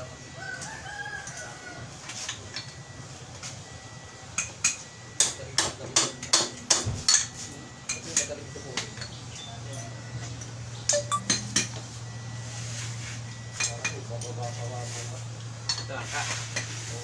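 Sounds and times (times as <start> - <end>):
rooster crowing: 0.4 - 1.9.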